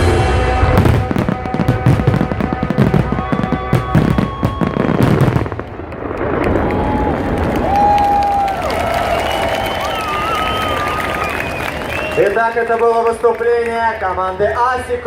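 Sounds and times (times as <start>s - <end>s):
loud music: 0.0s - 5.0s
firework bangs: 0.0s - 12.5s.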